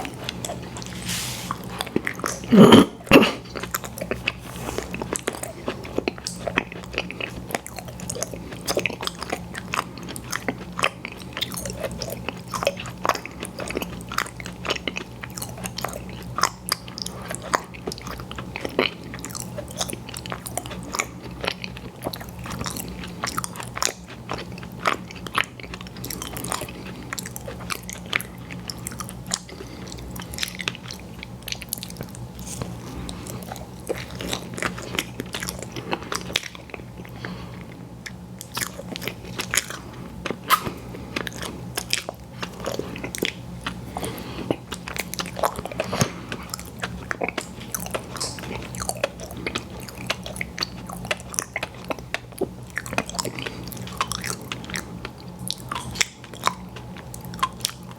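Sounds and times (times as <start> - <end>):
person biting and chewing: 0.0 - 9.5, 38.0 - 52.2.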